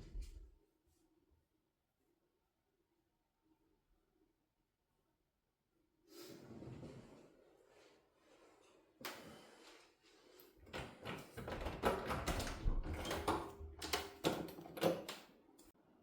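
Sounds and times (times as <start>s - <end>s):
irregular knocks and clicks: 10.7s - 15.2s.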